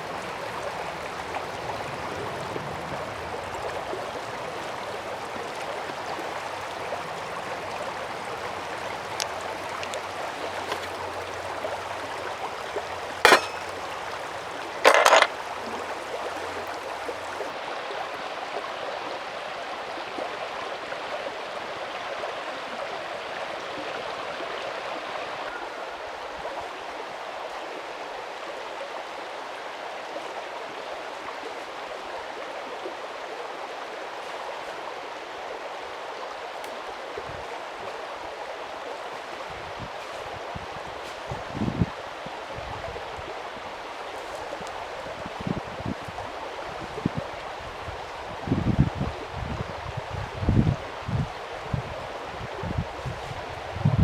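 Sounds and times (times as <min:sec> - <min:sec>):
mountain stream flowing: 0:00.0 - 0:53.8
sharp knocks: 0:13.2 - 0:14.2.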